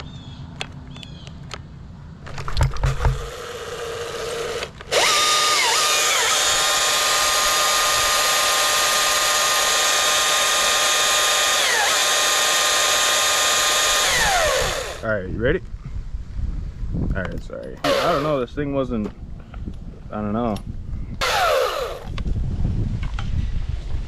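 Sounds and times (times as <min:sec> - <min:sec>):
battery chainsaw whining: 0:02.6 - 0:15.0, 0:17.8 - 0:18.5, 0:21.2 - 0:22.2.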